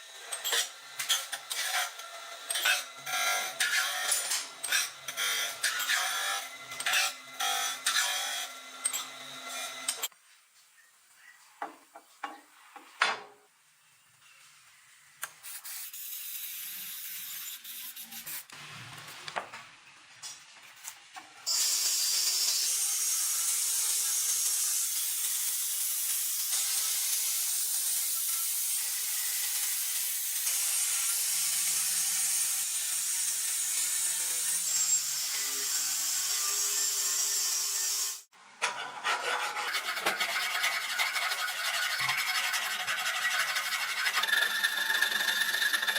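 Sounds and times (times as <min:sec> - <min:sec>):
power tool grinding metal: 0:00.0 - 0:10.1, 0:21.5 - 0:45.9.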